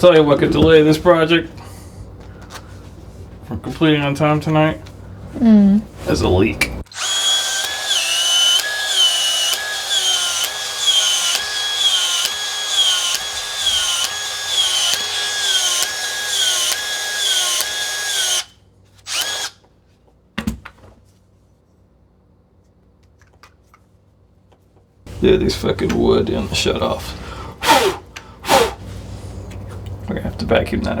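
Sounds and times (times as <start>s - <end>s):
power drill boring through wood: 6.9s - 19.6s, 27.6s - 28.8s.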